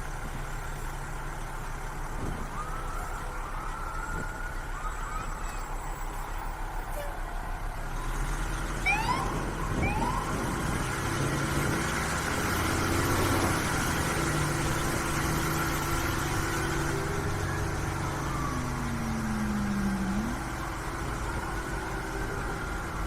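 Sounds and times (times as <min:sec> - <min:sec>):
siren whoop: 0:02.2 - 0:07.0, 0:08.8 - 0:10.8, 0:12.9 - 0:23.0
low falling siren tone: 0:02.2 - 0:23.0
diesel engine running: 0:06.3 - 0:23.0.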